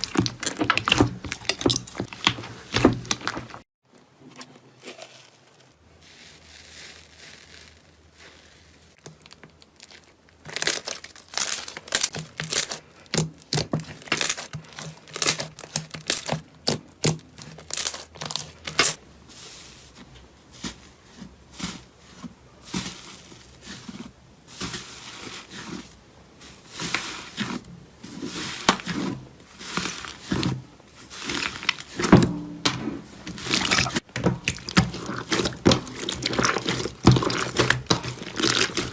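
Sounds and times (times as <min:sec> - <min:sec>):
slime popping and crackling: 0:00.0 - 0:03.6, 0:06.8 - 0:19.0, 0:33.3 - 0:38.9.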